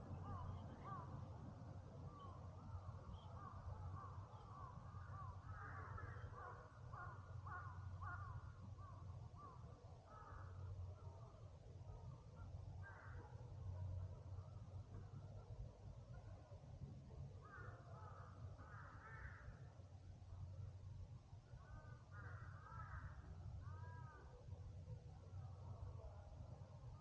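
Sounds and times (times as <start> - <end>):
crows cawing: 3.4 - 10.7, 12.8 - 13.3, 17.4 - 19.7, 21.6 - 24.3.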